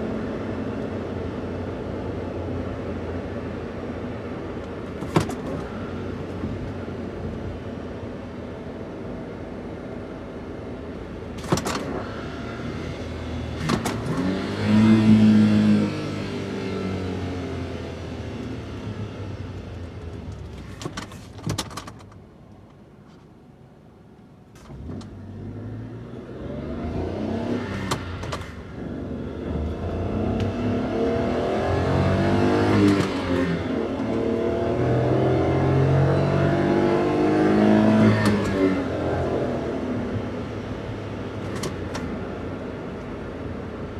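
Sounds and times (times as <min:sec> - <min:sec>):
van engine running: 0:00.0 - 0:34.4.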